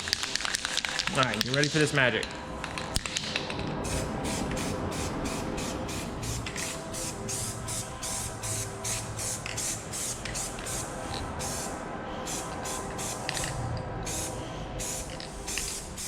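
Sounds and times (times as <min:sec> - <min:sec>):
spray paint can hissing: 0:03.0 - 0:16.0.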